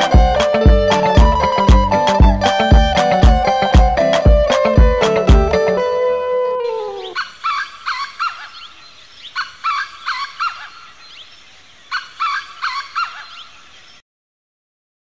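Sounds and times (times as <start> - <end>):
bird calling in short notes: 5.9 - 8.7.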